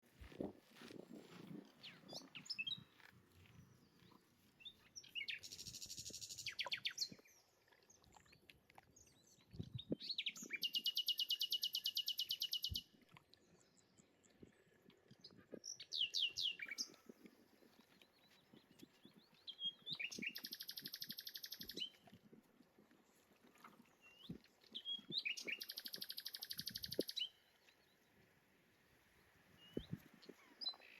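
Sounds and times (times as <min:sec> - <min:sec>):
songbird trills: 0:19.0 - 0:22.0, 0:24.1 - 0:27.5
bird chirps: 0:19.4 - 0:22.0, 0:24.1 - 0:27.4.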